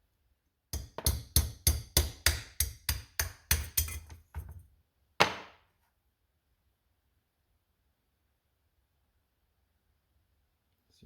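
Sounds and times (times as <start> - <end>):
hammer tapping on metal: 0.8 - 4.2.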